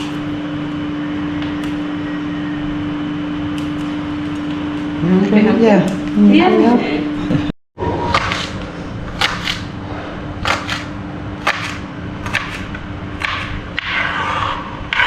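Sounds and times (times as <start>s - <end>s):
knife chopping on cutting board: 9.1s - 9.7s, 10.4s - 13.6s.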